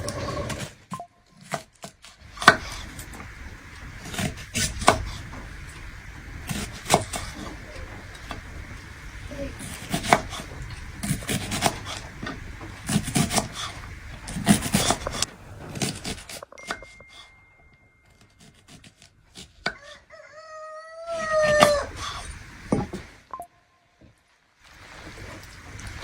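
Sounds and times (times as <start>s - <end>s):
sharp knocks: 2.4s - 16.3s
rooster crowing: 19.7s - 22.4s.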